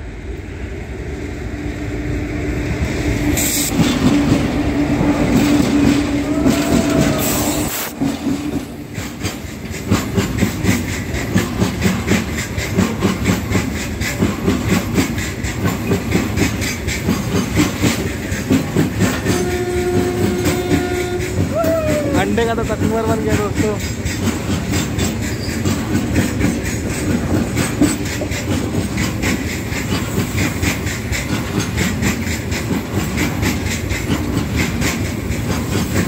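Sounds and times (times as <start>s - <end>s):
freight train rumble: 0.0s - 36.0s.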